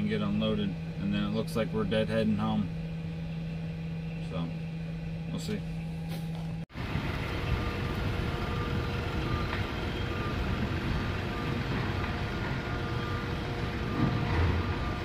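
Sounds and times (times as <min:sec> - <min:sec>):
faint steady whine: 0:00.0 - 0:15.0
heavy engine rumbling: 0:05.6 - 0:15.0.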